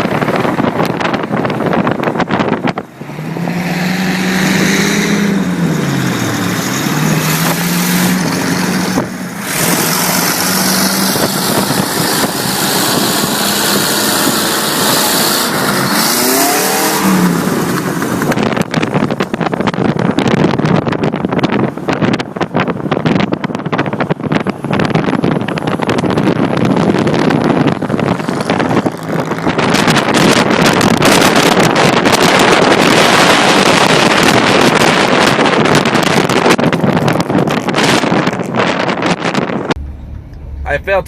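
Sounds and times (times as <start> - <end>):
car engine revving: 0.0 - 41.0
wind and road rush: 0.0 - 41.0.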